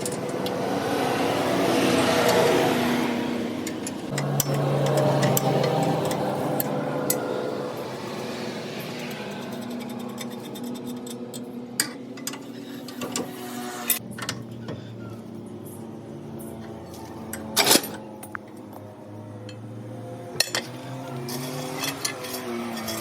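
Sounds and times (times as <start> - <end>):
metal parts clinking: 16.9 - 18.6, 20.4 - 23.0.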